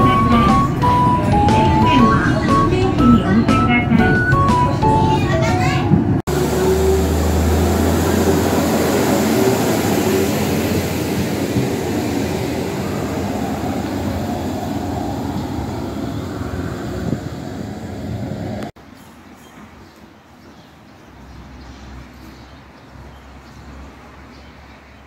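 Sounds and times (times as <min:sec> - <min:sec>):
diesel railcar engine hum: 0:00.0 - 0:18.7
train wheels rumbling: 0:00.0 - 0:18.7.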